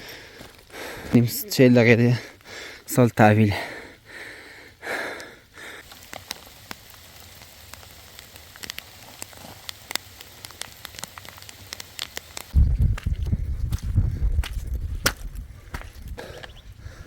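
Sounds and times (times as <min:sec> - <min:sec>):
rain falling: 0:05.8 - 0:12.6.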